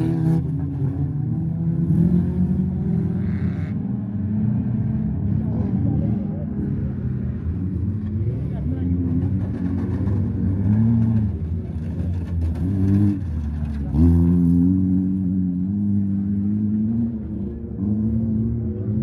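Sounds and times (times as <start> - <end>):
car engines revving hard: 0.0 - 19.0.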